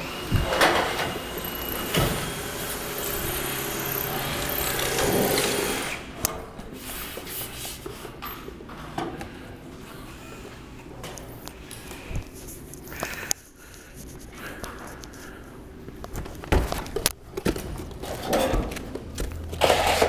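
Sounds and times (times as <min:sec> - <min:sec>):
power drill running: 0:00.0 - 0:06.1.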